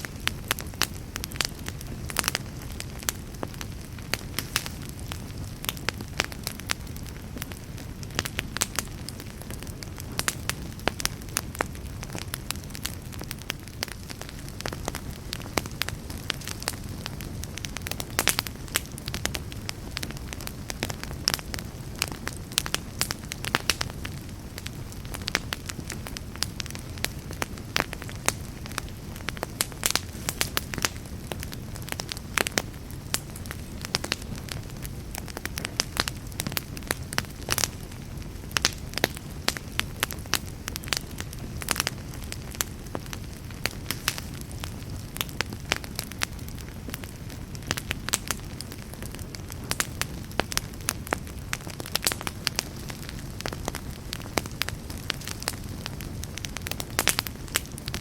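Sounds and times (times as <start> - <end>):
fireplace fire crackling: 0.0 - 58.0.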